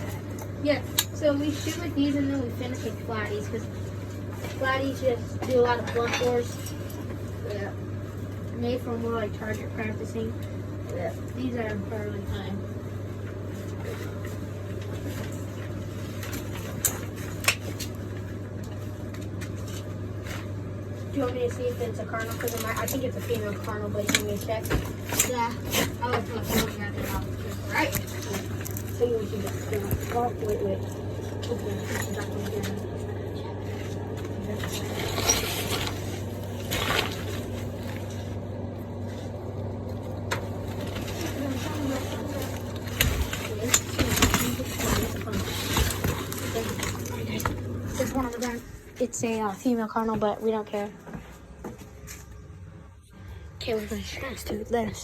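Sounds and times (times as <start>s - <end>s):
rustling: 33.6s - 38.4s, 40.6s - 48.7s.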